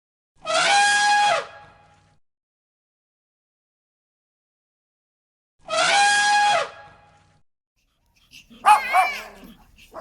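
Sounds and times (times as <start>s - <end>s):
dog whining: 8.2s - 10.0s
dog yelping: 8.2s - 10.0s.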